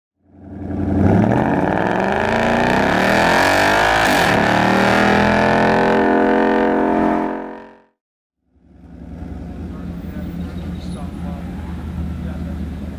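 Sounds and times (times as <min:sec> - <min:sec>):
car engine accelerating: 0:00.2 - 0:07.8, 0:08.5 - 0:12.9.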